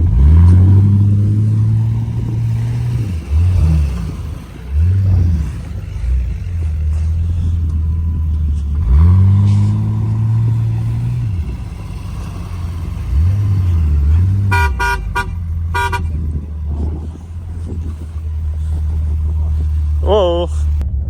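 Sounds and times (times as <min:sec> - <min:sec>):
engine revving: 0:00.0 - 0:21.0
car horn short toots: 0:14.0 - 0:16.5.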